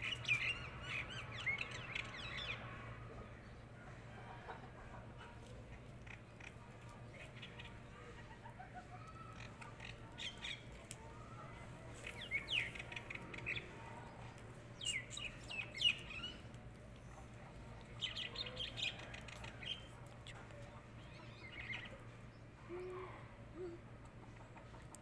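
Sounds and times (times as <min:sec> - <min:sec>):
faint low hum: 0:00.0 - 0:25.0
birds chirping and squawking: 0:12.0 - 0:13.7, 0:18.0 - 0:19.9.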